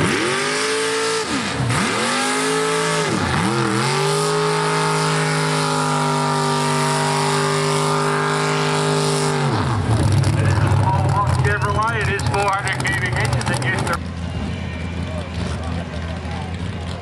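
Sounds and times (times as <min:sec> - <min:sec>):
tractor engine at high revs: 0:00.0 - 0:17.0.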